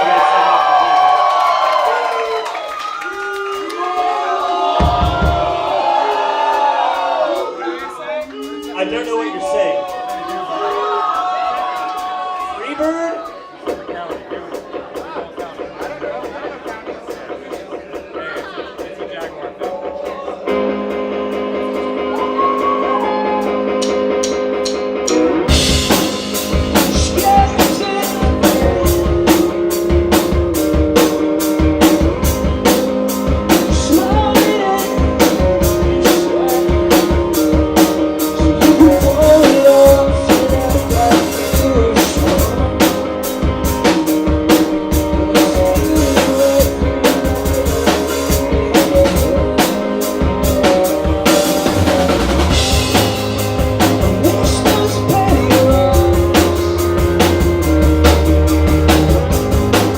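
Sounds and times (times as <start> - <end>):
live rock band playing: 0.0 - 59.9
drum kit fast beat: 4.5 - 7.6, 13.6 - 20.4, 21.4 - 59.9
distorted guitars: 13.6 - 59.9.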